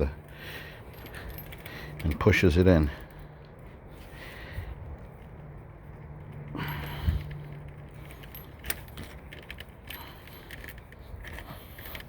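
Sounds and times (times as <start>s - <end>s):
tool and frame clicks and rattles: 0.8s - 3.3s, 5.1s - 12.0s.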